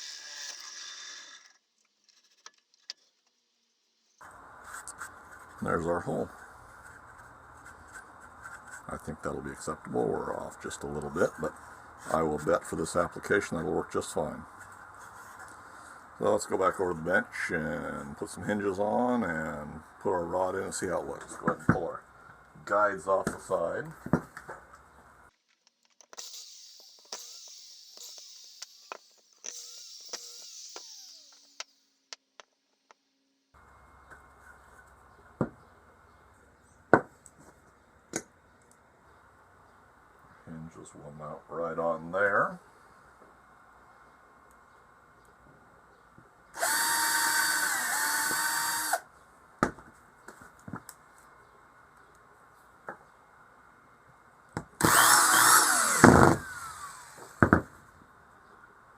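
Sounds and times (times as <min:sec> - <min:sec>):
power drill whining: 0:00.0 - 0:01.5, 0:26.2 - 0:31.7, 0:46.6 - 0:49.1, 0:54.8 - 0:57.4
sharp clicks and knock: 0:25.5 - 0:33.0.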